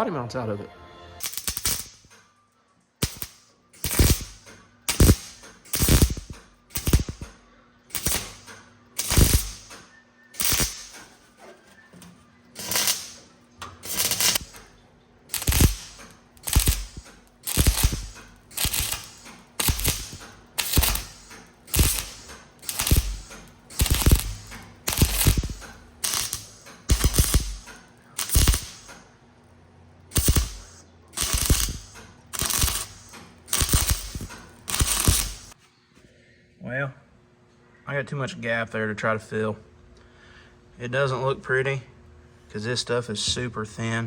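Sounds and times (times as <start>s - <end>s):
welder crackling bursts: 1.2s - 2.2s, 3.0s - 11.2s, 12.5s - 29.0s, 30.1s - 35.6s.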